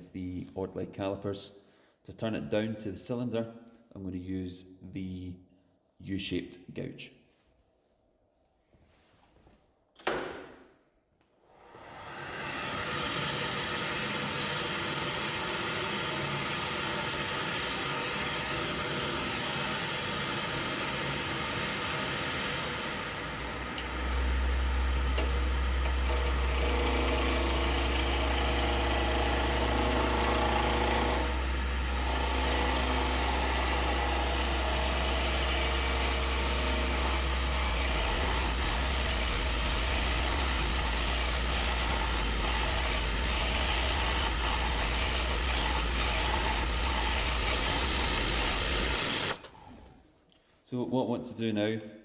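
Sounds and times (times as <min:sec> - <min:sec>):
wood lathe motor hum: 0:11.7 - 0:49.9
gouge rasping on wood: 0:34.7 - 0:49.3.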